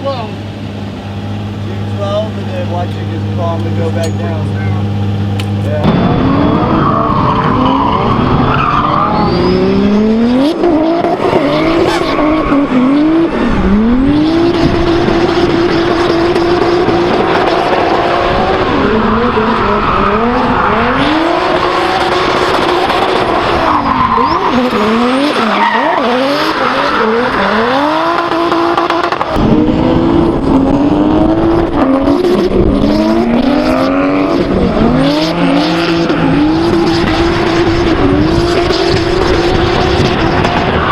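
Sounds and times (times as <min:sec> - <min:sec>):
car engine revving hard: 0:00.0 - 0:40.9
tyres squealing: 0:11.0 - 0:13.2, 0:23.3 - 0:27.9.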